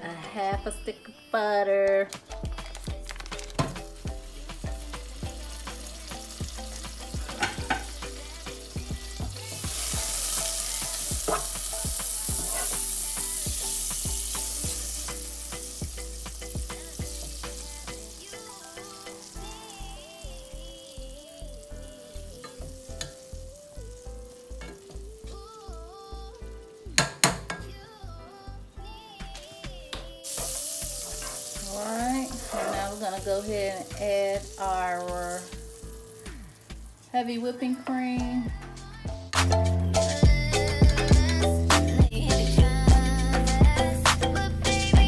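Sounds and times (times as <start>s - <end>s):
background music with steady beat: 0.0s - 45.0s
butter sizzling in a pot: 2.2s - 28.1s, 29.1s - 39.0s.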